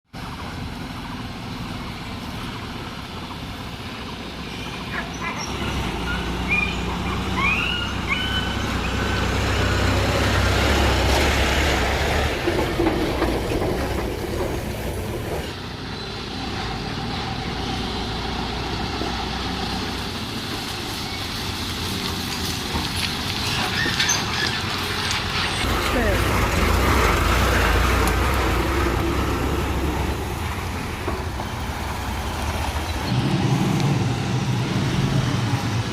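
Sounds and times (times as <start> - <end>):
short high squeaks: 5.1 - 9.4
diesel truck engine running: 24.4 - 35.9.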